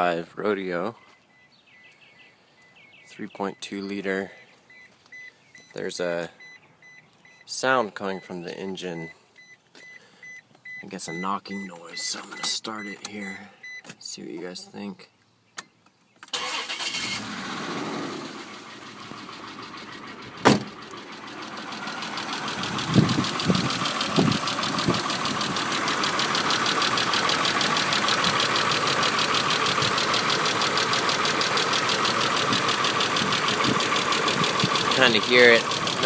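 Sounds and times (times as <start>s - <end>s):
car engine starting and idling: 16.2s - 36.0s
engine knocking: 21.0s - 36.0s.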